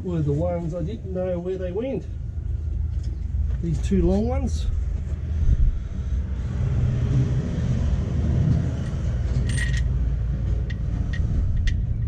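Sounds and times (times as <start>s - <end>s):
low background rumble: 0.0s - 12.0s
steel bolts clinking: 8.8s - 10.0s.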